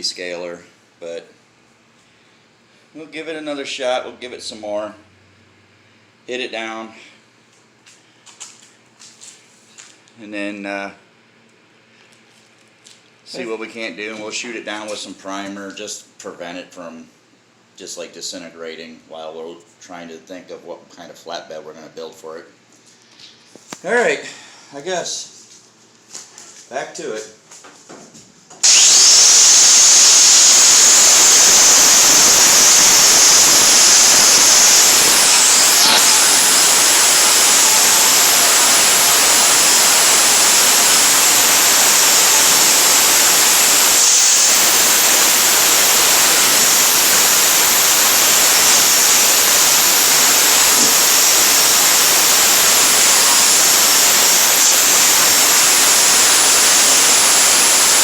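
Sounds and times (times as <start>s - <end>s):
grinder grinding metal: 28.6s - 58.0s
high motor whine: 28.6s - 58.0s.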